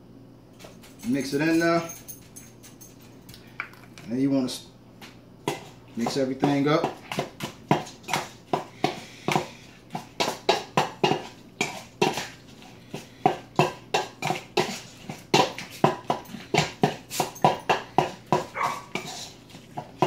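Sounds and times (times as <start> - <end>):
utensil stirring wet food mix: 5.0 - 20.0.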